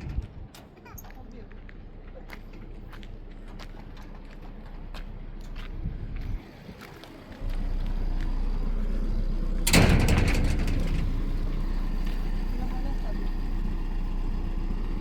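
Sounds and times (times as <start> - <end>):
vehicle engine running: 7.3 - 15.0
door shutting clatter: 9.6 - 12.7.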